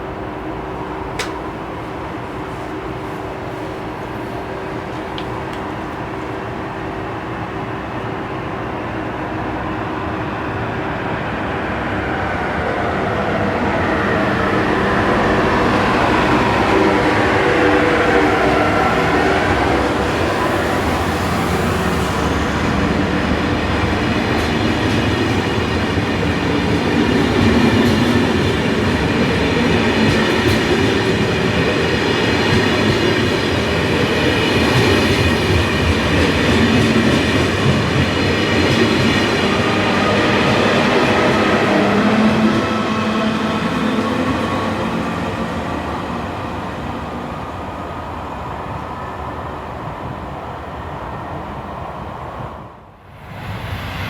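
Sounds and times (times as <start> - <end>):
train wheels rolling: 11.8 - 51.6.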